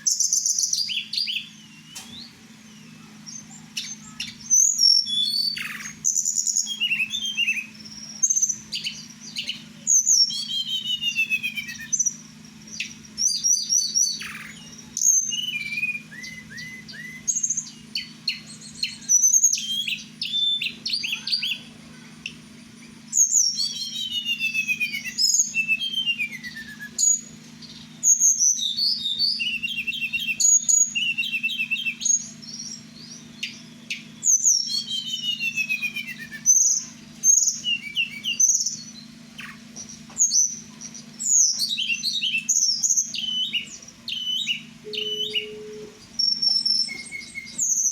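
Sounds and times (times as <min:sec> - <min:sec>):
faint low hum: 0:00.0 - 0:47.9
songbird chirping and trilling: 0:00.0 - 0:47.9.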